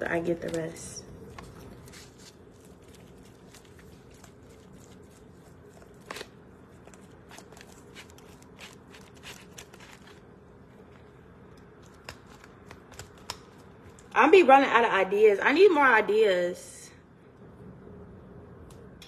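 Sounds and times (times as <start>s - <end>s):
steady low hum: 16.0s - 19.0s.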